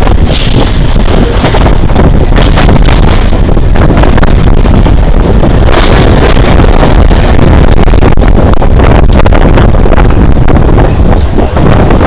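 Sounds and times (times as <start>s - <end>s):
electric train running on track: 0.0s - 12.0s
wind buffeting microphone: 0.0s - 12.0s.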